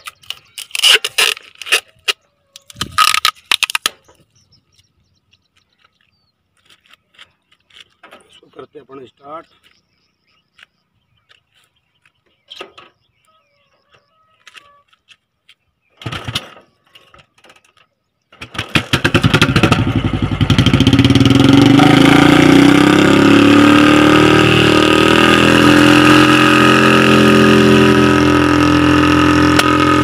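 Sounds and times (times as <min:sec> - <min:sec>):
motorcycle engine running: 0:18.4 - 0:30.0.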